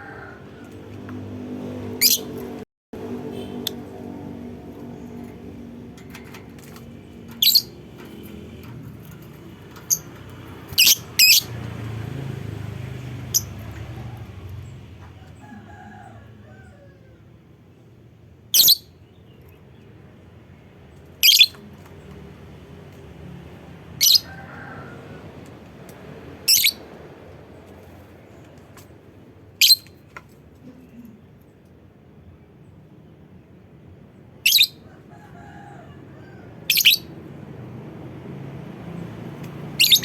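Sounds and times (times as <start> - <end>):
lovebird high-pitched calls: 2.0 - 2.3, 7.4 - 7.8, 10.7 - 11.5, 18.5 - 18.9, 21.2 - 21.6, 24.0 - 24.3, 26.4 - 26.8, 29.6 - 30.0, 34.4 - 34.9, 36.7 - 37.1, 39.8 - 40.0.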